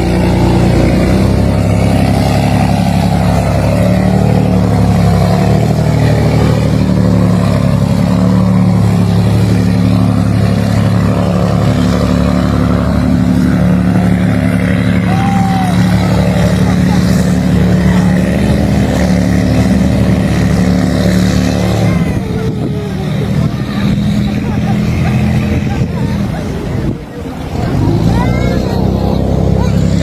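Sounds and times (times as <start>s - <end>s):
boat diesel engines droning: 0.0s - 30.0s.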